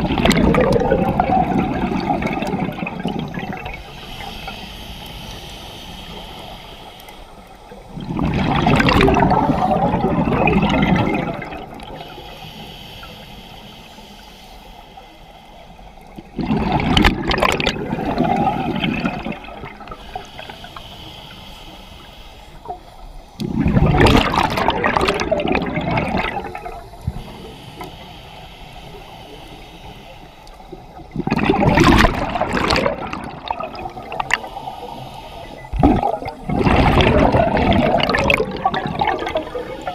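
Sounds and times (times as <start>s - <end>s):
gurgling exhaled bubbles: 0.0s - 4.3s, 7.8s - 12.2s, 16.2s - 20.6s, 23.4s - 27.3s, 30.7s - 39.9s
regulator inhalation hiss: 3.7s - 7.9s, 11.7s - 16.3s, 19.6s - 23.4s, 26.4s - 31.1s, 33.7s - 36.4s.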